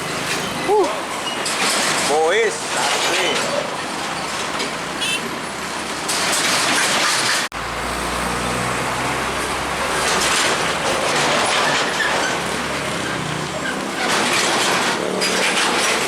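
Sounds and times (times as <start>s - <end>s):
heavy trucks going by: 0.0s - 16.0s
truck engine humming: 7.5s - 16.0s.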